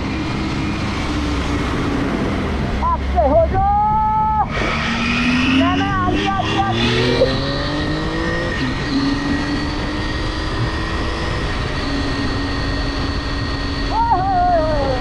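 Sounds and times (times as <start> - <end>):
motorcycle engine accelerating: 0.0 - 15.0
road and wind noise: 0.0 - 15.0.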